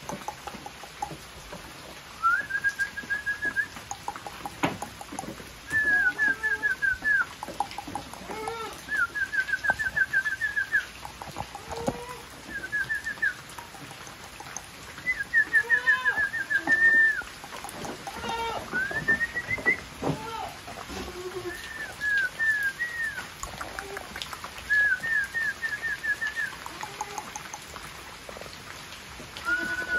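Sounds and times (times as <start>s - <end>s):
goats bleating: 18.1s - 18.7s.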